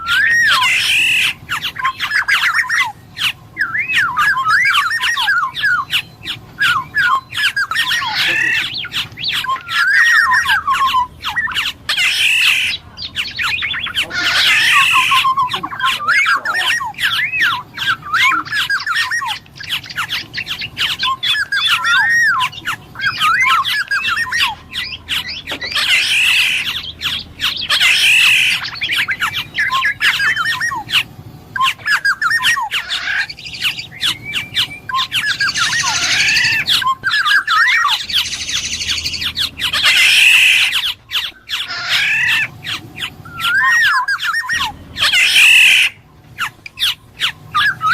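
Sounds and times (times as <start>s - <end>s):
oriole fluty whistled song: 0.0s - 42.6s, 43.2s - 47.9s
squawky bird calls: 0.0s - 47.9s.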